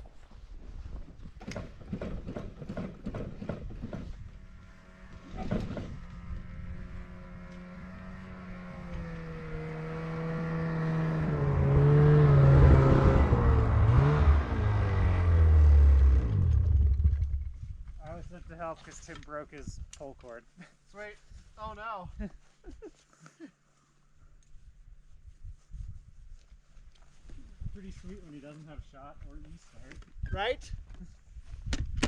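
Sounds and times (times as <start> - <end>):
snowmobile engine running and revving: 4.2 - 17.6
snowmobile engine cranking: 12.4 - 18.0.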